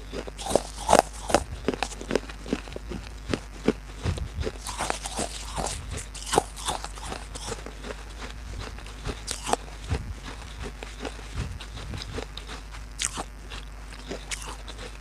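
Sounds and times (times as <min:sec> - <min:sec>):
crunching and chewing baked clay: 0:00.0 - 0:15.0.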